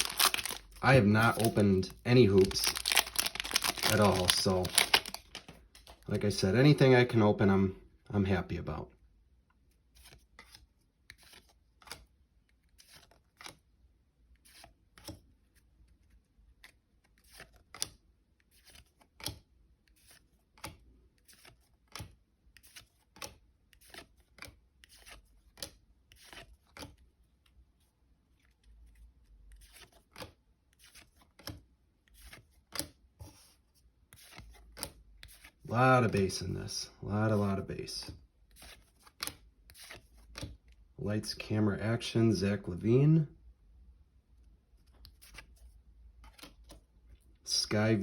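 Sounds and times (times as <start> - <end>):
wrapper tearing: 0.0 - 5.5
cards crinkling and clicking: 0.0 - 6.0, 10.0 - 13.7, 14.4 - 27.6, 28.4 - 33.0, 34.1 - 36.6, 38.5 - 40.8, 44.8 - 46.9.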